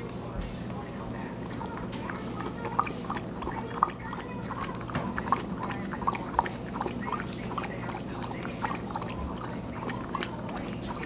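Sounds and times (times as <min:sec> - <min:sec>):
dog lapping water: 0:00.0 - 0:11.0.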